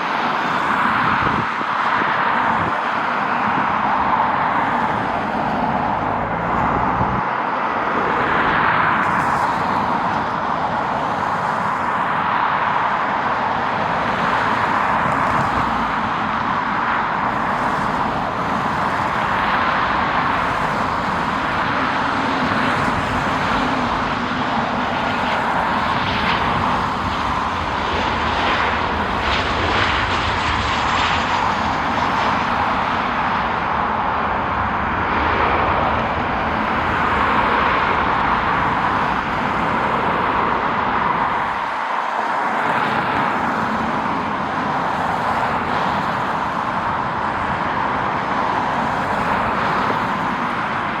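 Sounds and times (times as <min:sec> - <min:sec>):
jet engines rushing: 0:00.0 - 0:51.0.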